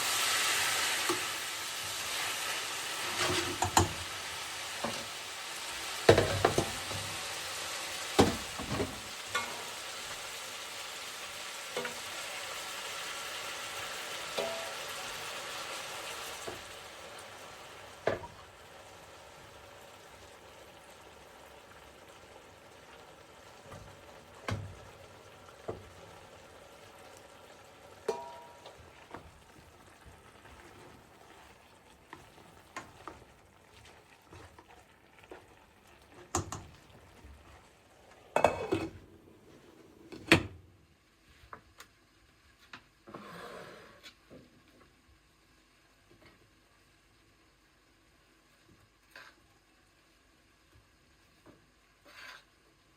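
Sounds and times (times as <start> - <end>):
food sizzling in a pan: 0.0 - 40.1, 40.8 - 52.9
utensil scraping a pan: 3.0 - 4.0, 43.1 - 44.2, 52.0 - 52.5.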